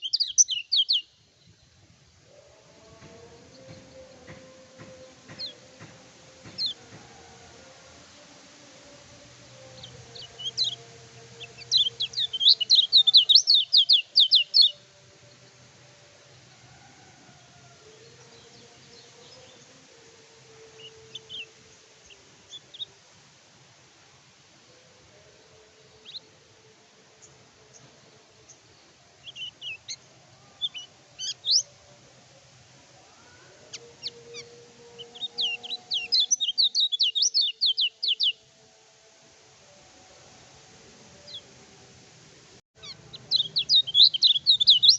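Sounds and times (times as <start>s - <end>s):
bird singing chirps: 0.0s - 7.0s, 7.6s - 16.2s, 17.5s - 23.0s, 27.2s - 32.0s, 33.0s - 38.5s, 42.8s - 44.9s.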